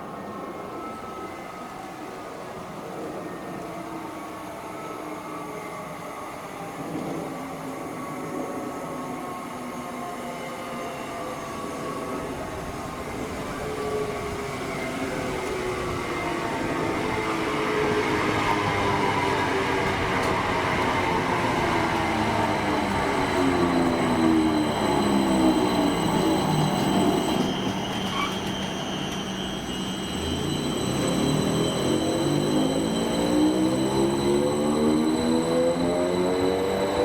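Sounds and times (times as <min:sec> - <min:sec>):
wheels rumbling on rails: 0:12.0 - 0:37.0
train whine falling in pitch: 0:13.3 - 0:37.0.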